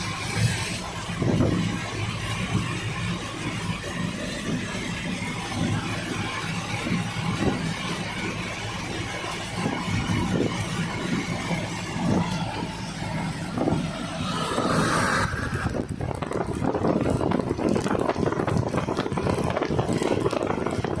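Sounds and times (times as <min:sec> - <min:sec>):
dense rapid rattle: 0:00.0 - 0:21.0
vehicle running: 0:00.0 - 0:21.0.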